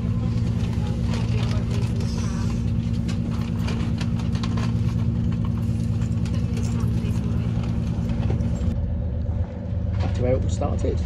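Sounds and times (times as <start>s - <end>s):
wheels clicking and rattling: 0.0s - 8.8s
train engine drone: 0.0s - 11.0s.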